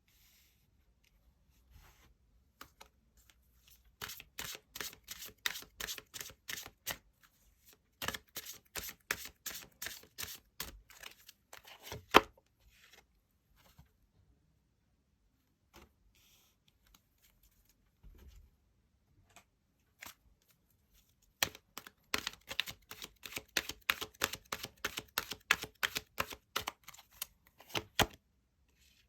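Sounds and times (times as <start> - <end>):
cards tapping and rustling: 21.4 - 28.2.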